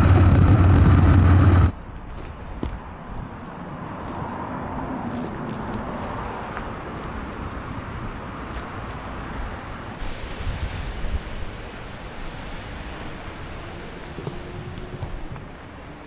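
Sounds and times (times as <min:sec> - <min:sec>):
low rumble: 0:00.0 - 0:01.7
wind noise on microphone: 0:05.0 - 0:15.6.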